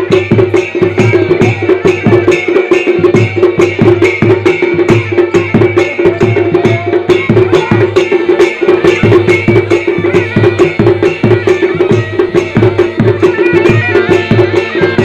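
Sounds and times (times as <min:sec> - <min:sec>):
drums beating quick strokes: 0:00.0 - 0:15.0
bagpipe drone and reedy melody: 0:08.6 - 0:15.0.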